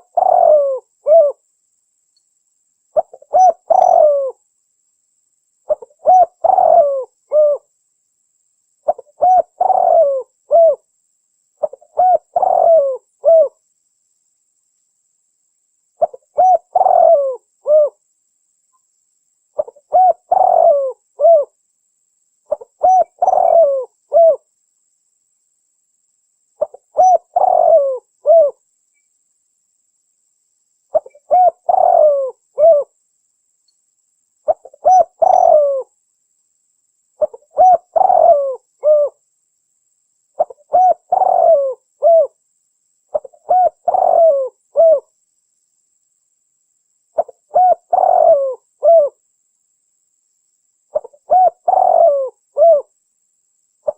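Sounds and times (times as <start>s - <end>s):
dove cooing: 0.0s - 1.4s, 3.0s - 4.4s, 5.7s - 7.7s, 8.8s - 10.9s, 11.6s - 13.6s, 16.0s - 18.0s, 19.6s - 21.6s, 22.5s - 24.5s, 26.6s - 28.6s, 30.9s - 32.9s, 34.5s - 35.9s, 37.2s - 39.2s, 40.4s - 42.4s, 43.1s - 45.1s, 47.2s - 49.2s, 50.9s - 52.9s.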